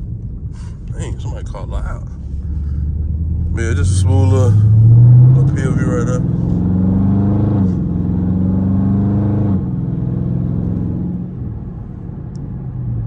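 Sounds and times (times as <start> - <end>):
car engine under throttle: 0.0 - 13.0.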